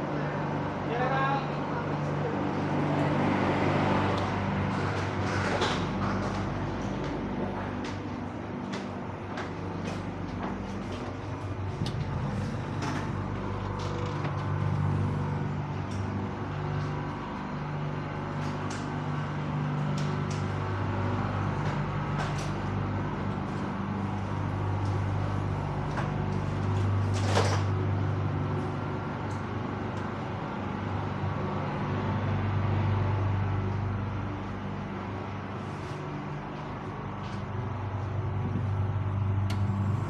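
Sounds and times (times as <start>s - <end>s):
train low hum: 0.0s - 40.0s
clicks and creaks: 11.8s - 14.9s.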